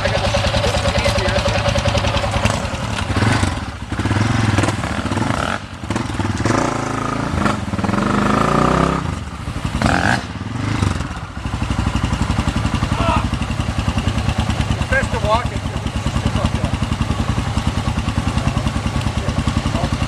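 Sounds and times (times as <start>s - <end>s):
dirt bike engine revving: 0.0s - 20.0s
dirt bike engines running: 0.0s - 20.0s.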